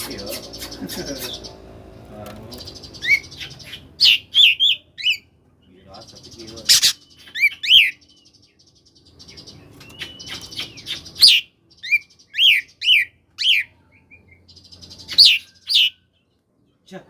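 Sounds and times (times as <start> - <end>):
soft high bird twittering: 0.0 - 17.0
bird singing whistled notes: 2.5 - 5.3, 6.0 - 16.4.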